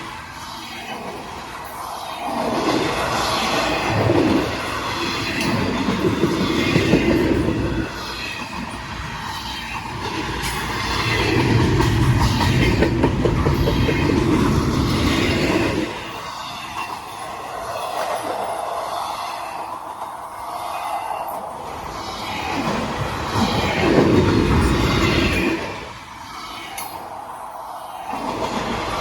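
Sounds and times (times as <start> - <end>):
train rumbling past: 0.0 - 29.0.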